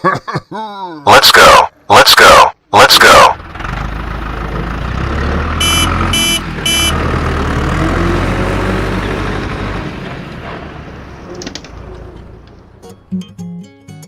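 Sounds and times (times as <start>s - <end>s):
truck engine rumble: 3.1s - 13.4s
short high beeps: 5.6s - 6.9s.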